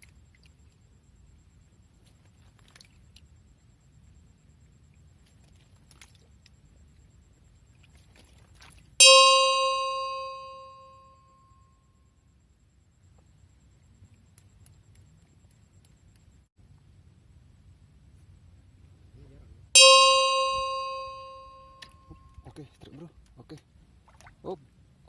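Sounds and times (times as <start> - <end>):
faint low background noise: 0.0 - 25.0
loud bell-like ding: 9.0 - 11.7, 19.8 - 22.6.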